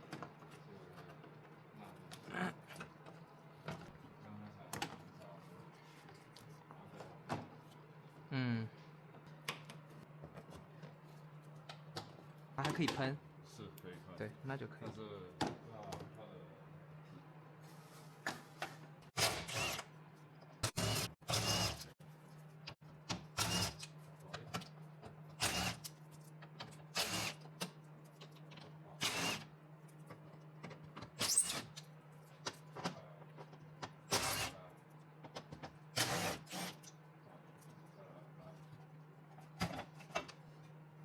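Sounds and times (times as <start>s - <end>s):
short bursts of tool noise: 19.2s - 19.9s, 23.4s - 23.9s, 25.4s - 25.8s, 26.9s - 27.4s, 29.0s - 29.5s, 34.1s - 34.6s, 36.0s - 36.8s.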